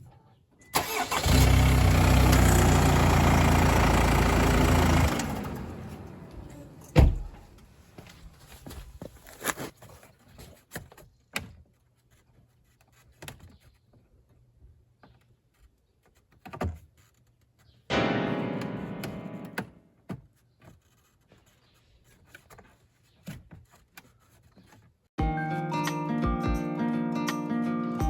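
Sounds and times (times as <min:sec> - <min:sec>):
struck ringing musical tone: 0:17.9 - 0:19.8.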